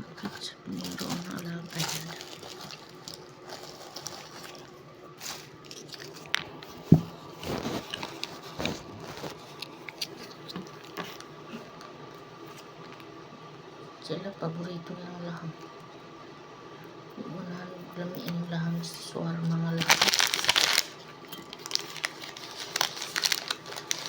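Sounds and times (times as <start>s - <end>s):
chewing and crunching food: 0.2s - 13.1s, 19.8s - 24.0s.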